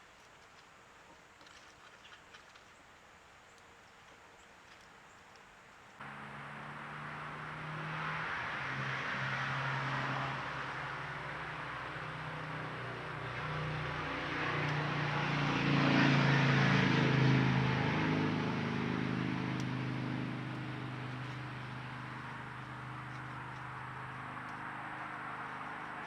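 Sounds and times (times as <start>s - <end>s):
vehicle passing by: 6.0s - 26.0s.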